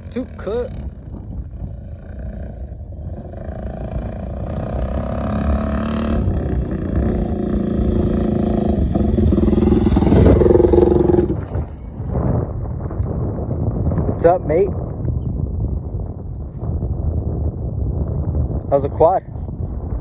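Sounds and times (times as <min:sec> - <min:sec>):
quad engine revving: 0:02.2 - 0:11.8.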